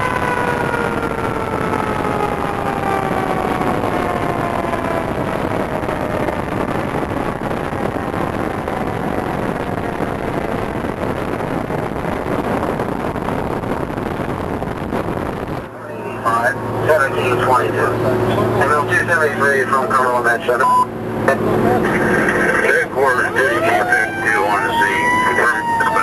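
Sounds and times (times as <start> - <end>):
siren winding down: 0.0 - 14.5, 22.2 - 26.0
fire engine driving: 0.0 - 26.0.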